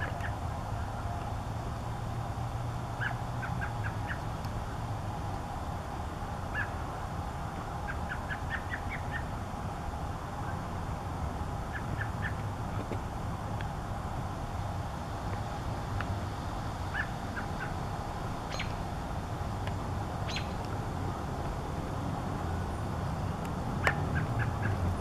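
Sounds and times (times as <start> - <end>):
clipped bird call notes: 18.5 - 18.8.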